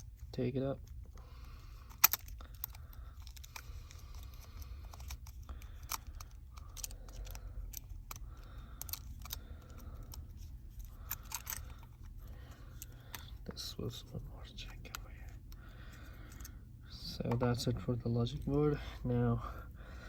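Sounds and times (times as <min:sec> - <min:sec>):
small clicks of tools and parts: 0:01.8 - 0:13.4.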